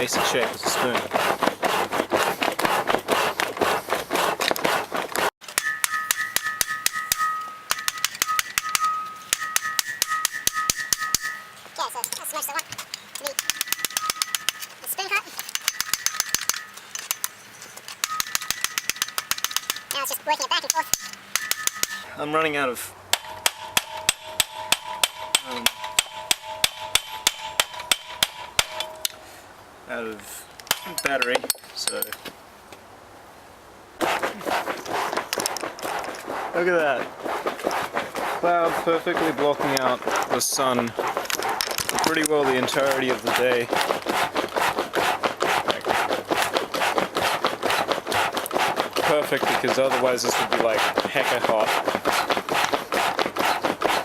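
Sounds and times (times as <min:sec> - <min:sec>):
hammer striking metal on anvil: 0:05.4 - 0:11.6, 0:13.3 - 0:14.7, 0:18.0 - 0:20.0, 0:20.8 - 0:22.1, 0:23.1 - 0:29.2
anvil ringing: 0:05.4 - 0:12.1, 0:13.3 - 0:14.8, 0:15.5 - 0:17.4, 0:18.0 - 0:20.0, 0:20.6 - 0:22.1, 0:23.1 - 0:29.2.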